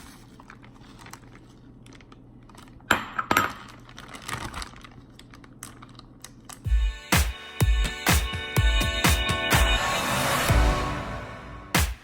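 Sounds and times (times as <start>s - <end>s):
plastic bag crackles: 0.0s - 2.9s, 3.7s - 6.7s.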